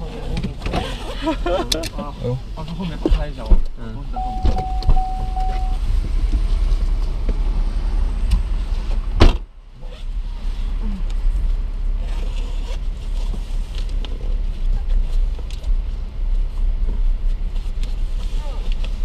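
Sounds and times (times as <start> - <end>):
car engine idling: 0.0 - 19.0
steady tone: 4.1 - 5.9.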